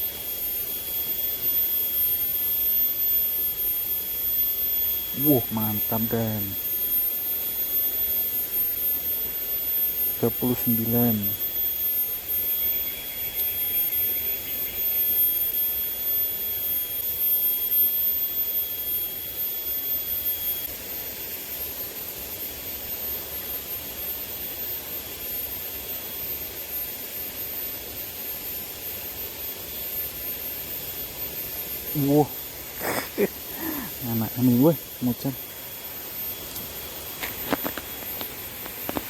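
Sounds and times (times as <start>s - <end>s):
thin high tone: 4.8s - 8.8s, 31.9s - 39.0s.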